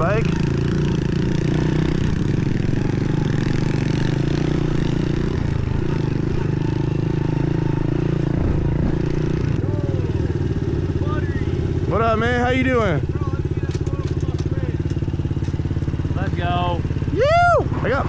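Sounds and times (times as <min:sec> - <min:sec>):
pit bike engine running: 0:00.0 - 0:18.0.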